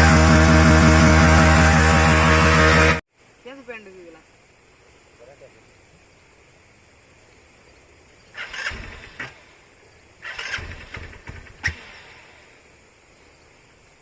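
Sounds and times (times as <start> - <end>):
motorcycle engine starting: 0.0 - 3.0, 8.3 - 9.6, 10.2 - 12.5.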